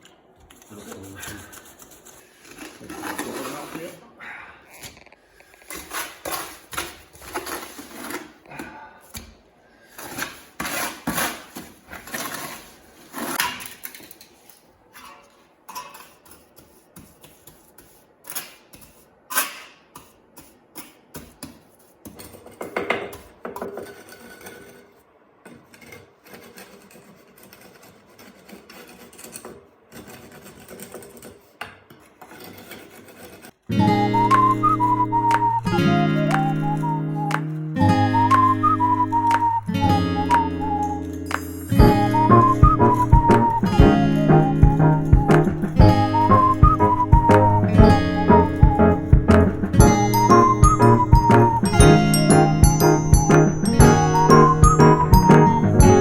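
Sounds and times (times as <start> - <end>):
hand tools tapping and scraping: 4.7 - 33.6, 40.3 - 43.7.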